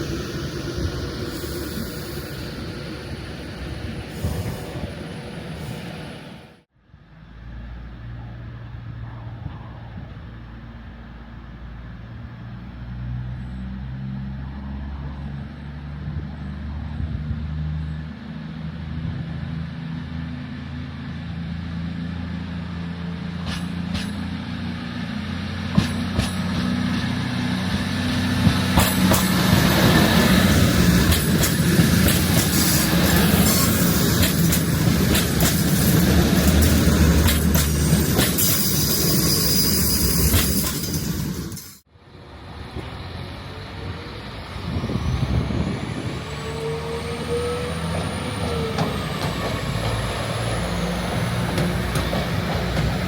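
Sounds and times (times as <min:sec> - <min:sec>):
rush of wheel and rail noise: 0:00.0 - 0:53.0
train low hum: 0:00.0 - 0:53.0
wheels clicking over rail joints: 0:23.3 - 0:41.8, 0:47.9 - 0:53.0.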